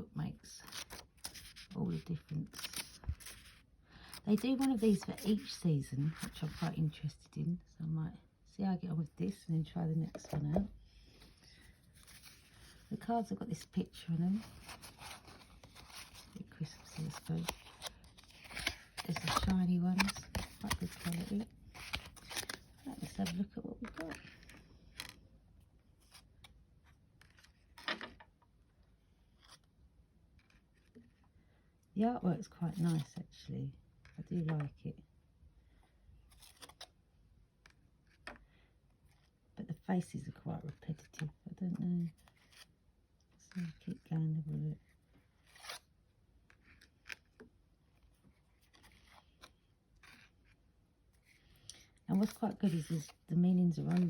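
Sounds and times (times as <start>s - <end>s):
cards clicking and scraping: 14.4s - 25.2s.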